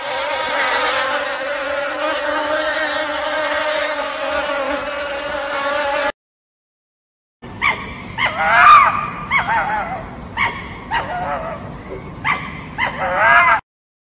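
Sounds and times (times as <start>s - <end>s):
dog yipping and whining: 7.6s - 11.6s, 12.2s - 13.6s.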